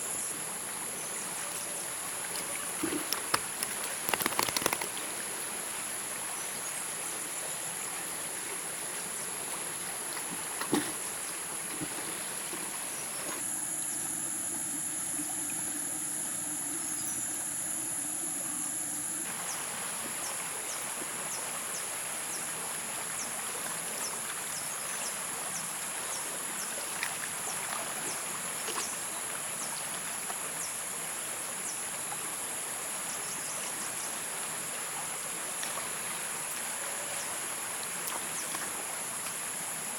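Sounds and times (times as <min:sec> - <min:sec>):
high insect drone: 0:00.0 - 0:09.4, 0:12.9 - 0:20.7
stream water flowing: 0:00.0 - 0:39.9.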